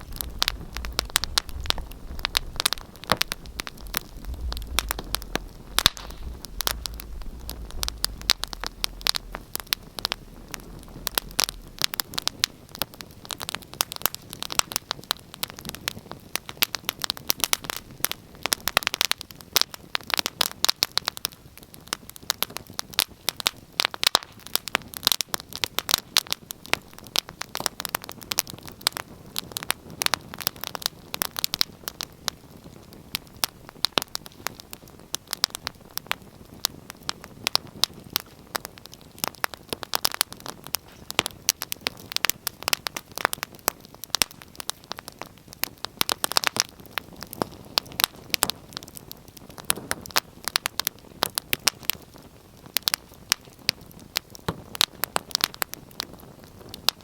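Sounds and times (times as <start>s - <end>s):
low rumble: 0.0s - 13.4s
wood fire crackling and popping: 0.0s - 57.0s.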